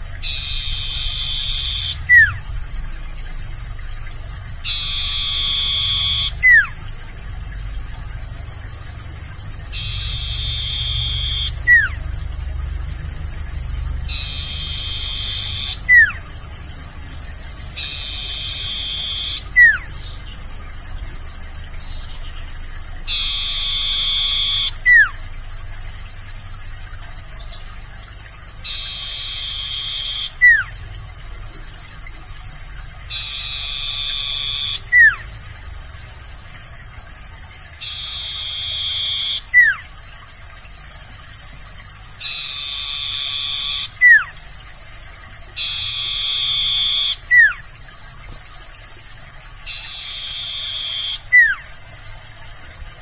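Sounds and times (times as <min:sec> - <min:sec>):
owl buzzy hissing call: 0:00.2 - 0:02.2, 0:04.7 - 0:06.6, 0:17.8 - 0:19.8, 0:45.6 - 0:47.2
owl falling whistle: 0:00.3 - 0:02.3, 0:17.9 - 0:19.8.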